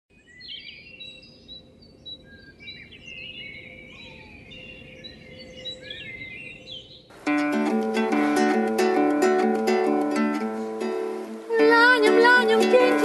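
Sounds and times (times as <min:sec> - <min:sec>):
songbirds chirping and singing: 0:00.2 - 0:07.2.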